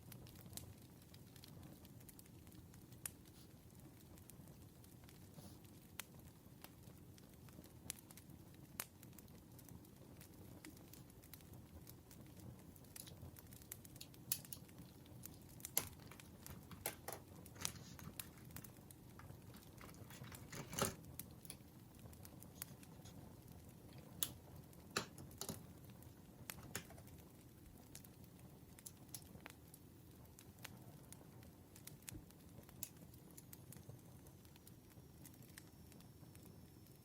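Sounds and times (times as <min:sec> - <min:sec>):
campfire crackling and popping: 0:00.0 - 0:37.0
low rumble of flame: 0:00.0 - 0:37.0.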